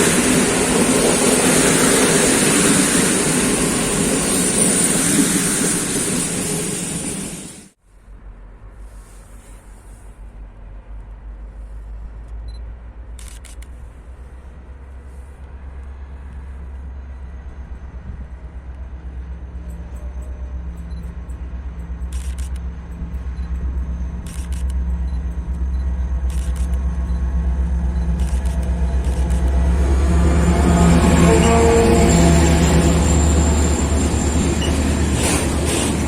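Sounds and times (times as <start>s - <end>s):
train approaching drone: 0.0s - 36.0s
steady low hum: 7.9s - 36.0s.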